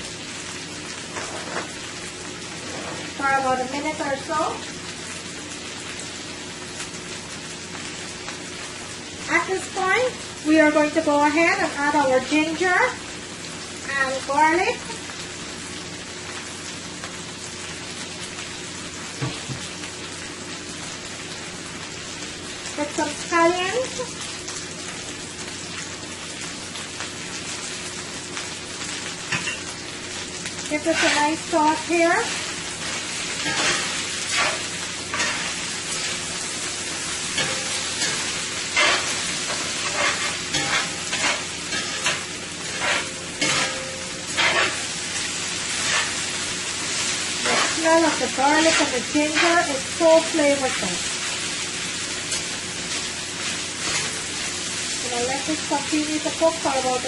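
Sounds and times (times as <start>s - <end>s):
chicken sizzling in skillet: 0.0s - 57.0s
utensil scraping food against pan: 1.1s - 1.8s, 2.5s - 3.2s, 30.7s - 36.3s, 37.2s - 45.0s, 45.7s - 46.3s, 47.0s - 49.7s, 53.4s - 54.3s.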